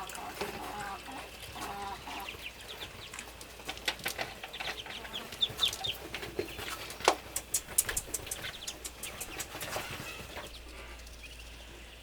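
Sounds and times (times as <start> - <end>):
hen clucking: 0.0 - 12.0
sharp taps: 6.9 - 9.6.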